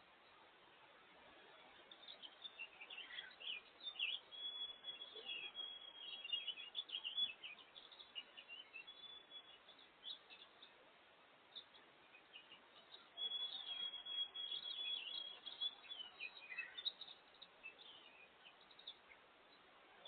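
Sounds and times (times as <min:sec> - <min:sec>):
faint steady hiss: 0:00.0 - 0:20.0
small songbirds chirping: 0:00.0 - 0:20.0.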